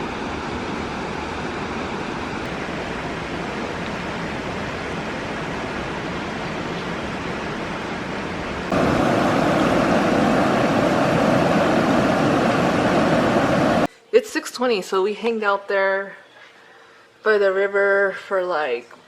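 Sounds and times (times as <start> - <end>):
flowing river water: 1.9 - 13.9.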